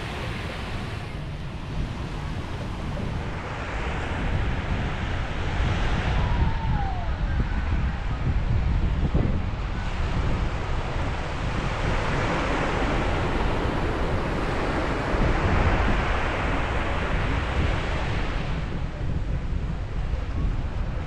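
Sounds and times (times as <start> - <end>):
ocean wave breaking: 0.0 - 6.2
wind buffeting microphone: 0.0 - 21.0.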